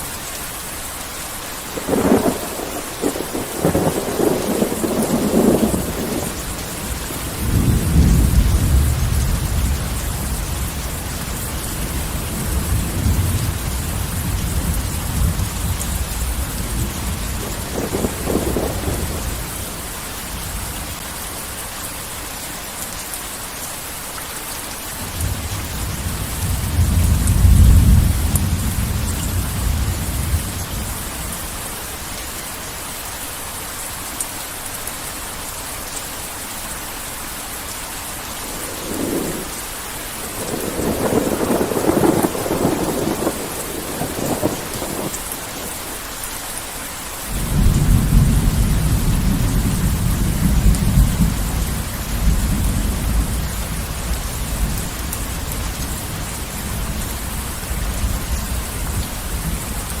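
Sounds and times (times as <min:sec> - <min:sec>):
heavy rain falling: 0:00.0 - 1:00.0
thunder rumbling: 0:01.7 - 0:21.0, 0:25.0 - 0:31.4, 0:38.3 - 0:46.0, 0:47.3 - 1:00.0.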